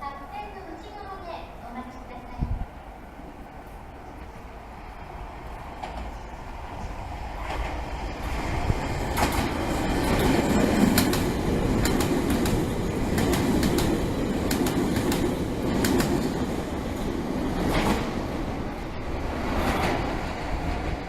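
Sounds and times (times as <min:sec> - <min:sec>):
electric train rumble: 0:00.0 - 0:21.0
wheels clicking over rail joints: 0:07.3 - 0:18.1.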